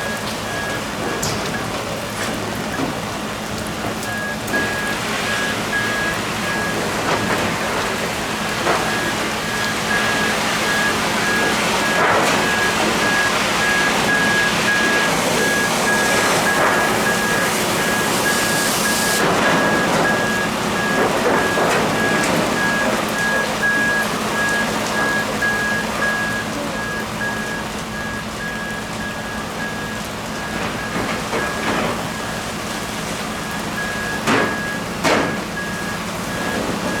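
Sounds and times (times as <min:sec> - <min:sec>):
reversing alarm beeping: 0:00.0 - 0:03.1, 0:03.9 - 0:37.0
constant rushing hiss: 0:01.9 - 0:30.6.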